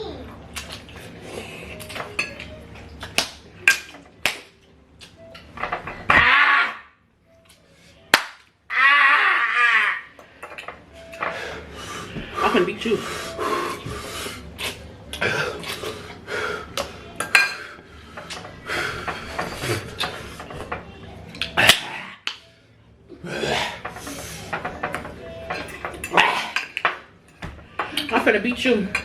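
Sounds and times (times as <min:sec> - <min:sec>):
forks clinking against dishes: 0:01.7 - 0:06.2, 0:17.2 - 0:22.4, 0:23.8 - 0:29.0.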